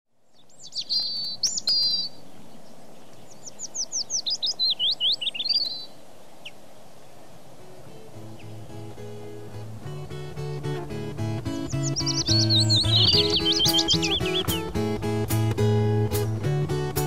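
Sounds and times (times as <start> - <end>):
songbird singing: 0.1 - 17.0
quiet music: 7.6 - 17.0.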